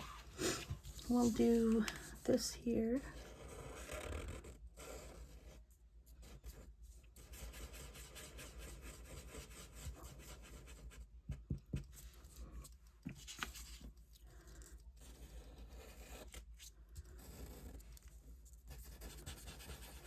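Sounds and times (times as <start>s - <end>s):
rubbing and scratching on paper: 0.0s - 20.0s.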